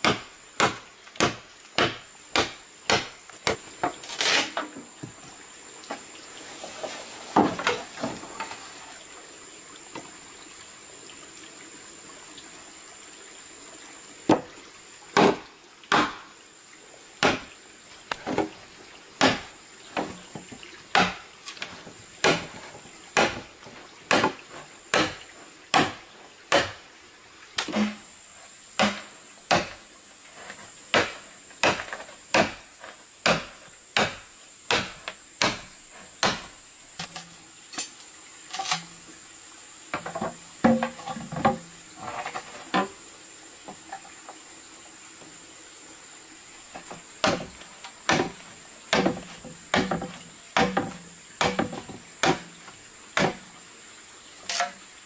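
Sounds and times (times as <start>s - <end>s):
hatchet chopping wood: 0.0s - 3.7s, 15.2s - 16.3s, 17.2s - 17.5s, 19.2s - 20.2s, 20.9s - 22.6s, 23.2s - 23.5s, 24.1s - 26.8s, 28.8s - 29.9s, 30.9s - 37.3s, 47.2s - 52.6s, 53.2s - 53.5s.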